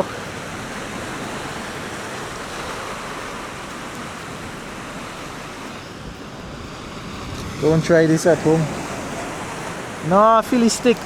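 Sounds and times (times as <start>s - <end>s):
surf washing against rocks: 0.0s - 11.0s.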